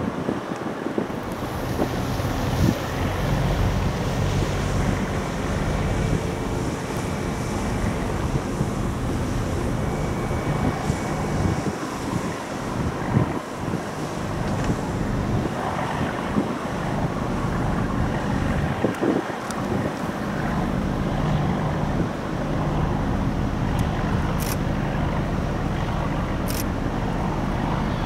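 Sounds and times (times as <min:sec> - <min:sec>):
wind buffeting microphone: 0:00.0 - 0:28.0
ship engines droning: 0:01.0 - 0:28.0.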